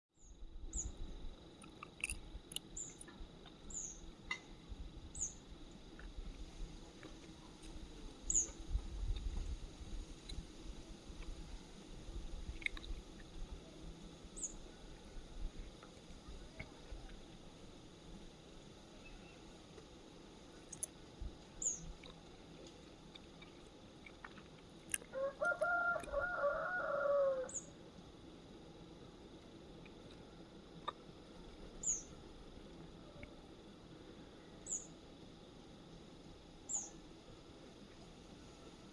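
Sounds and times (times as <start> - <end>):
fowl calling: 25.1 - 27.7.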